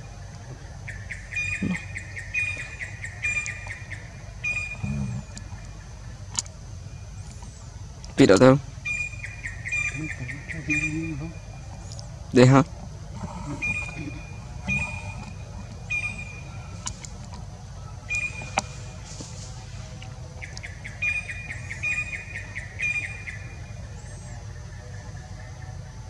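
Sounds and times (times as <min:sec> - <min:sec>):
bird calling: 0:00.0 - 0:26.0
low background rumble: 0:00.0 - 0:26.0.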